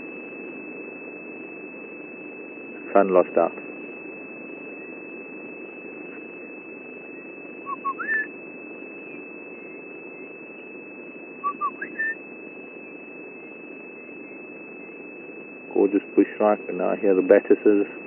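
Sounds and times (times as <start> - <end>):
low background hum: 0.0 - 18.0
bird whistling call: 7.7 - 8.3, 11.4 - 12.2.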